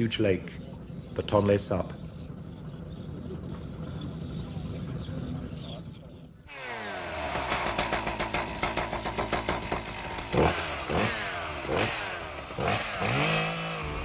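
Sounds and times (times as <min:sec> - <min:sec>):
chainsaw running hard: 0:06.5 - 0:14.0.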